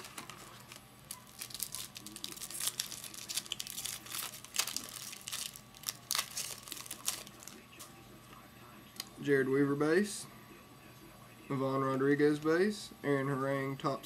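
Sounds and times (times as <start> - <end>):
foil wrapper tearing and crinkling: 0.0 - 7.6
cards rustling: 0.0 - 7.9.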